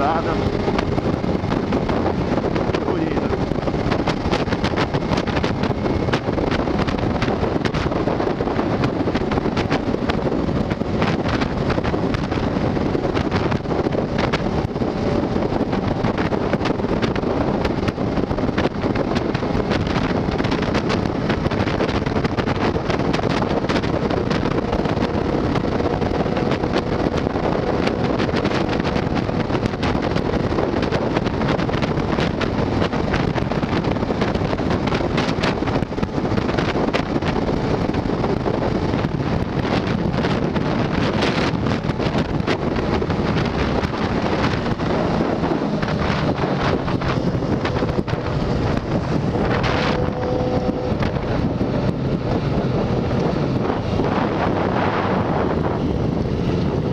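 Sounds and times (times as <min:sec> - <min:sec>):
wind buffeting microphone: 0:00.0 - 0:56.9
faint hum rising in pitch: 0:43.6 - 0:56.9.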